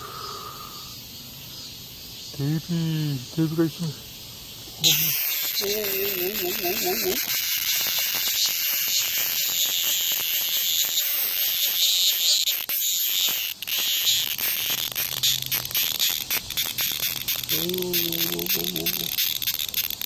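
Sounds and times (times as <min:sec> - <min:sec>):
cicada buzzing: 0:00.0 - 0:20.0.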